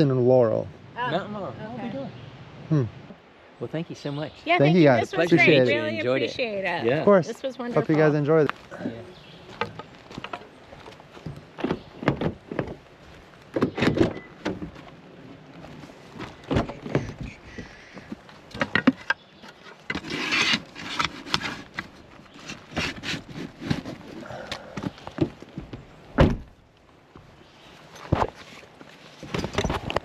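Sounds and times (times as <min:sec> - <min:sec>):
rustling: 0:05.2 - 0:30.0
knocks and clicks of handling: 0:16.5 - 0:19.2.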